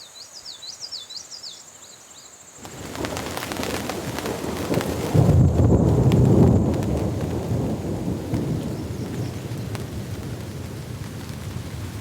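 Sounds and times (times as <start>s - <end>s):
bird chirping: 0.0s - 2.9s
heavy rain: 2.6s - 12.0s.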